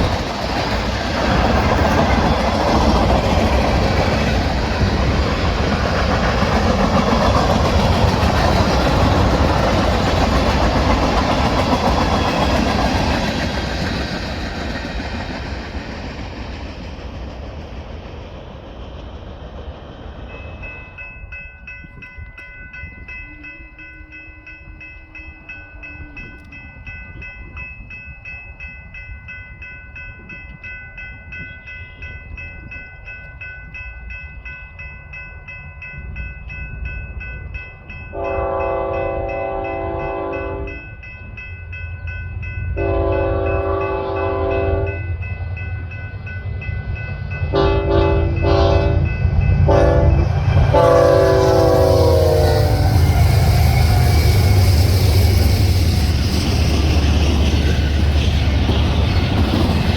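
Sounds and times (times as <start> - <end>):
crossing bell ringing: 20.2 - 59.9
locomotive horn blasts: 38.1 - 40.8, 42.8 - 45.0, 47.5 - 49.1, 49.7 - 53.0
locomotive rumble: 42.8 - 59.9.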